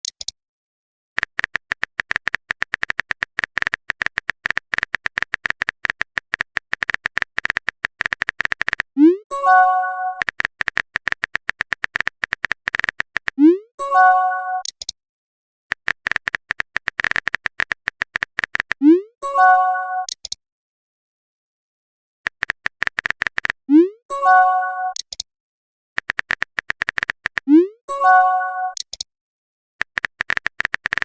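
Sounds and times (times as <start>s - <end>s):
electronic typing clicks: 1.2s - 15.0s, 15.7s - 18.9s, 20.0s - 20.4s, 22.3s - 25.3s, 26.0s - 29.1s, 29.8s - 31.0s.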